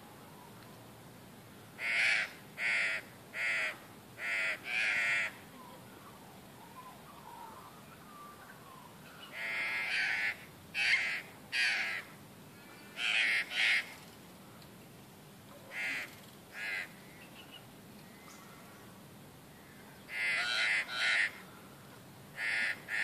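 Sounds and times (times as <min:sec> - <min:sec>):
crows cawing: 0:01.8 - 0:05.4, 0:09.3 - 0:12.2, 0:12.9 - 0:14.0, 0:15.7 - 0:17.1, 0:19.6 - 0:21.5, 0:22.4 - 0:23.0.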